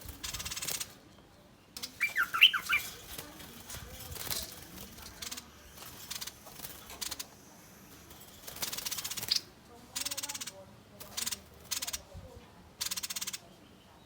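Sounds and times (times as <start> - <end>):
harsh bird threat calls: 1.8 - 7.3
bird scolding chirps: 1.8 - 12.1, 12.8 - 13.6.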